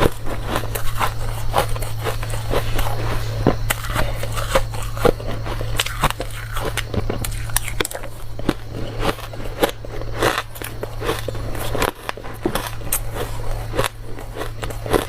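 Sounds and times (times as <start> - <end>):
ice being chewed: 0.0 - 15.0
low hum: 0.0 - 15.0.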